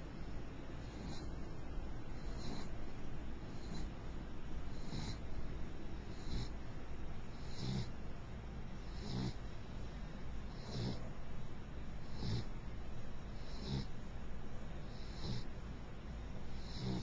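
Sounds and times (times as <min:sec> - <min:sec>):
dog snoring: 0:00.8 - 0:01.4, 0:02.0 - 0:02.8, 0:03.5 - 0:04.0, 0:04.7 - 0:05.4, 0:06.0 - 0:06.6, 0:07.3 - 0:08.0, 0:08.8 - 0:09.9, 0:10.5 - 0:11.1, 0:12.0 - 0:12.6, 0:13.3 - 0:14.0, 0:14.8 - 0:15.6, 0:16.4 - 0:17.0.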